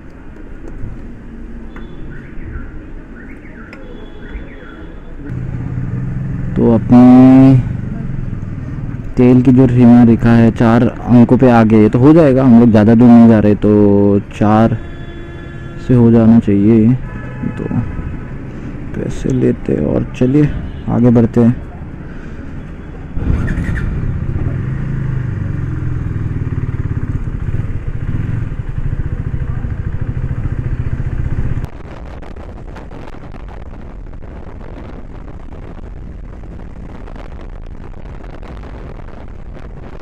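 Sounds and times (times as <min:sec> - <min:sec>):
road noise: 0:00.0 - 0:40.0
motorcycle engine: 0:05.3 - 0:09.2, 0:23.2 - 0:31.7.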